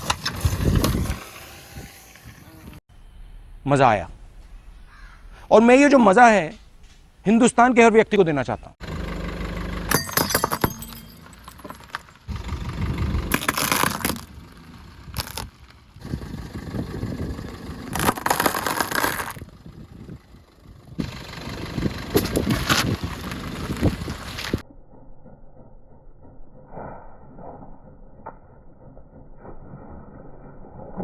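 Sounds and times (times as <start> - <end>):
broken pieces clinking and scraping: 9.9 - 12.3.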